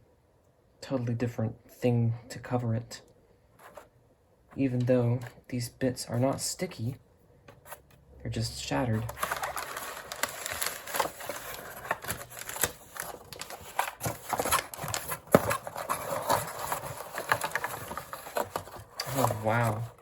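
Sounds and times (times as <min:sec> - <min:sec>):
packaging rustling: 0:09.0 - 0:20.0.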